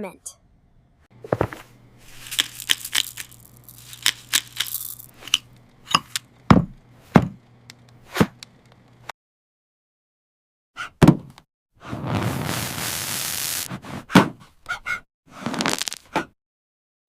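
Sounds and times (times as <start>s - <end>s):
steady low hum: 0.4s - 9.1s
sharp clicks and crackles: 2.2s - 6.3s.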